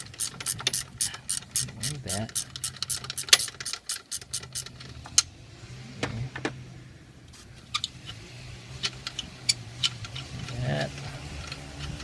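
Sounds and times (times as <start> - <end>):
socket ratchet clicking: 0.0 - 4.8
metal tools clicking and knocking: 0.0 - 4.9.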